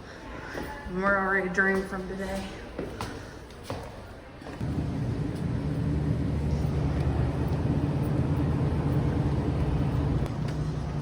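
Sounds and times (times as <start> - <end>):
low mechanical drone: 4.6 - 11.0.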